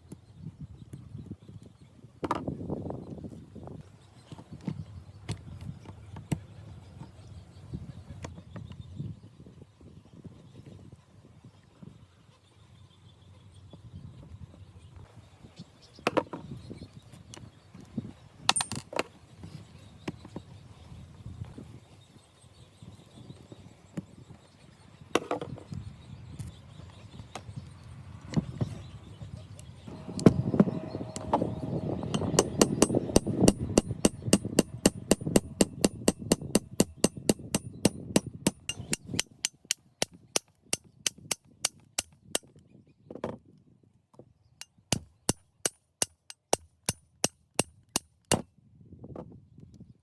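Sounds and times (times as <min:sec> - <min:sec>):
low rumbling noise: 0:29.8 - 0:36.8
hand tool tapping: 0:32.1 - 0:42.5.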